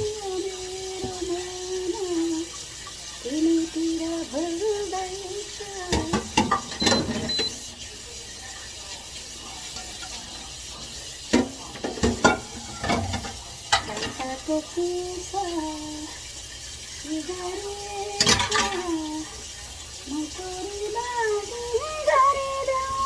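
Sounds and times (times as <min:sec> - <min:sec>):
dishes and utensils clattering: 0:05.8 - 0:07.9, 0:08.5 - 0:14.8, 0:18.1 - 0:19.5.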